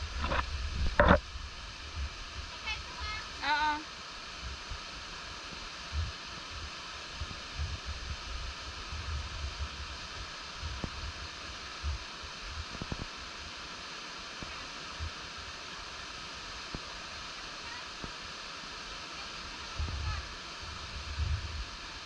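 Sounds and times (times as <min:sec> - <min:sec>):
stream water rushing: 0:00.0 - 0:22.0
wind buffeting microphone: 0:19.7 - 0:21.7.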